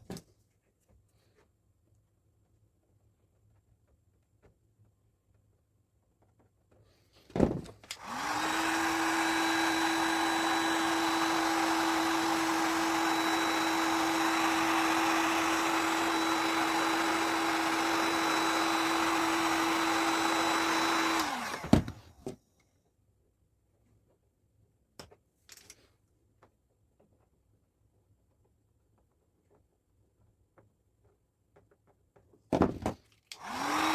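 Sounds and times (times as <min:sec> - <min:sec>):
heat gun fan whirring: 0:07.8 - 0:22.3, 0:33.3 - 0:33.9.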